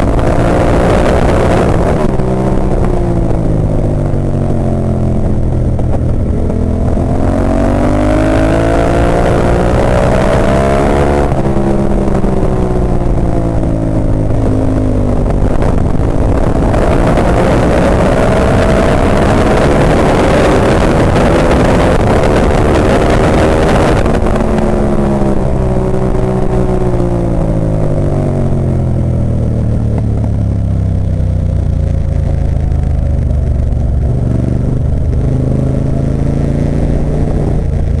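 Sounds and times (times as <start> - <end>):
loud rushing wind: 0.0 - 38.0
motorcycle engine revving: 0.0 - 38.0.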